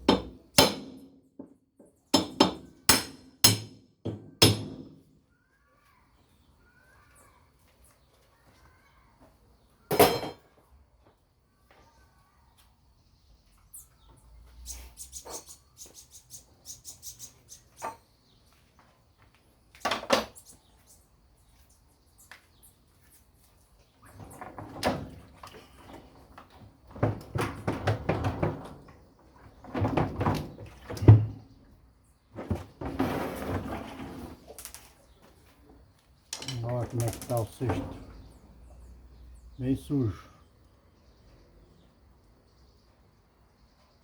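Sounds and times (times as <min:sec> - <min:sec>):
rattling and scraping: 0:32.3 - 0:35.1, 0:36.3 - 0:38.4
washing machine parts clattering: 0:36.3 - 0:38.2.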